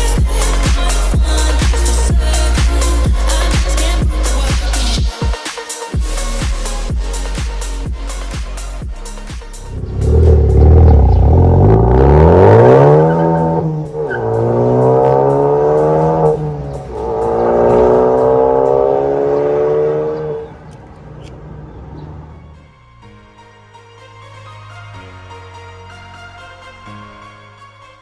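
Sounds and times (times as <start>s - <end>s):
car engine accelerating hard: 9.6s - 22.5s.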